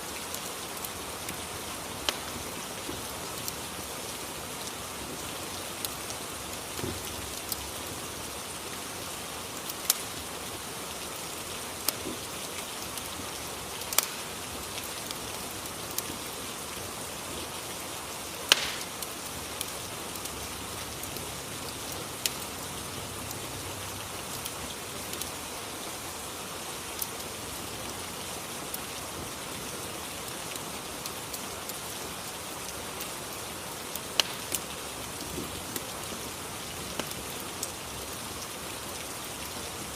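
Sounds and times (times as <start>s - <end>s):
steady rain hiss: 0.0s - 39.9s
fireplace crackling and popping: 0.1s - 23.4s, 24.2s - 25.7s, 26.8s - 37.8s.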